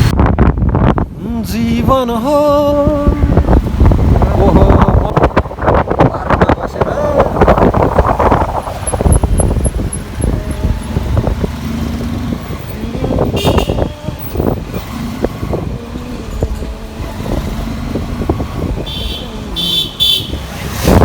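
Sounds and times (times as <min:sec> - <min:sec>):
motorbike engine rumble: 0:00.0 - 0:21.0
road traffic: 0:00.0 - 0:21.0
vehicle horn honking: 0:13.3 - 0:14.1, 0:18.8 - 0:20.5.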